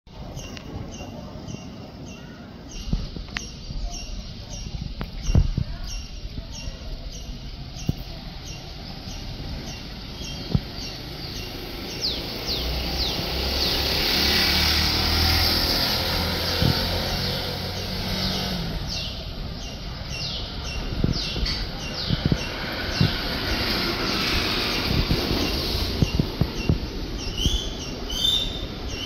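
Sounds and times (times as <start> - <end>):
bird chirping: 0.1 - 29.0
passing vehicle rumble: 6.0 - 29.0.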